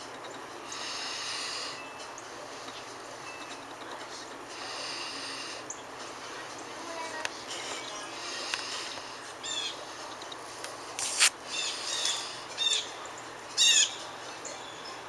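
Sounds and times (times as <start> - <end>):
wild bird calls: 8.5 - 9.9, 11.4 - 14.0.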